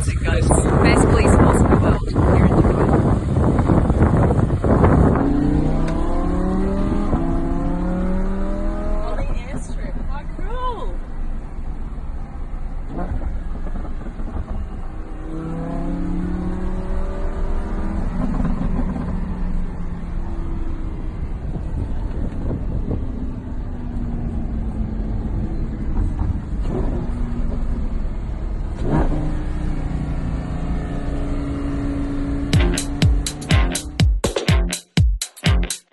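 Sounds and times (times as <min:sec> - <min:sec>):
constant low rumble: 0:00.0 - 0:06.4, 0:21.0 - 0:29.2
car engines revving: 0:00.0 - 0:34.0.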